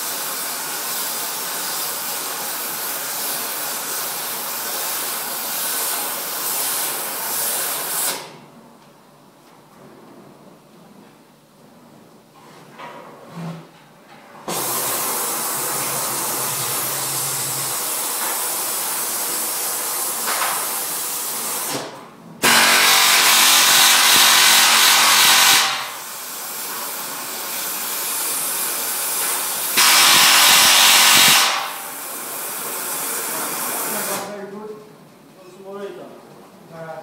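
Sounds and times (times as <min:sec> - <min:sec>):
power tool running: 0:14.5 - 0:18.3, 0:22.4 - 0:27.6, 0:28.2 - 0:32.4.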